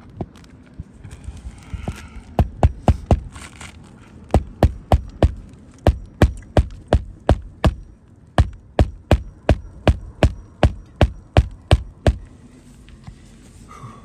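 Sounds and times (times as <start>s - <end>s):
hammer driving nails: 2.4s - 3.3s, 4.3s - 12.3s.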